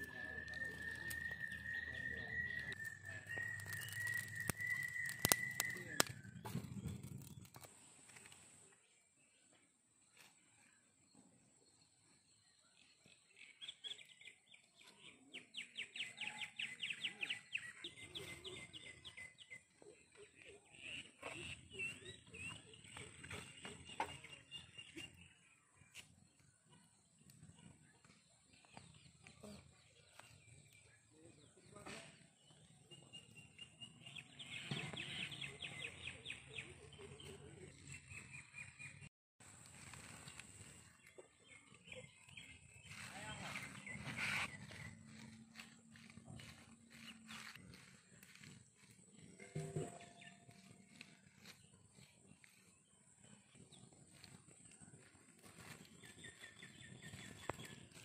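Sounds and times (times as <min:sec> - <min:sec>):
bird chirping rapidly: 0:00.0 - 0:06.4.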